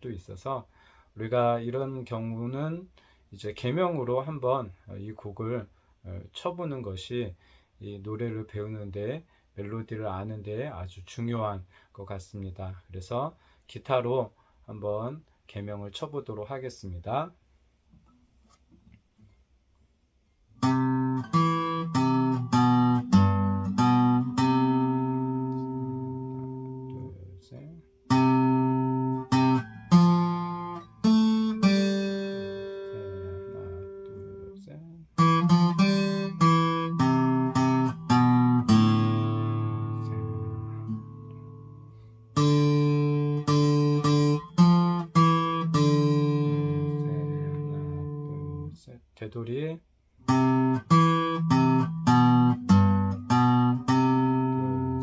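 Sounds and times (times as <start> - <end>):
acoustic guitar chords strummed: 20.6 - 48.7, 50.3 - 55.0.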